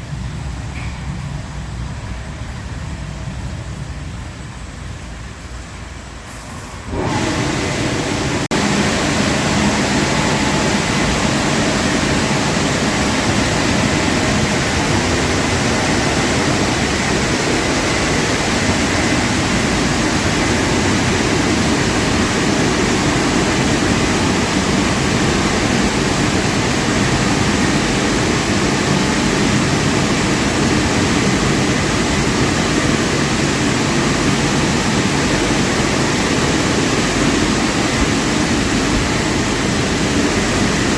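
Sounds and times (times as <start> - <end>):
car wash machinery rushing: 0.0 - 40.9.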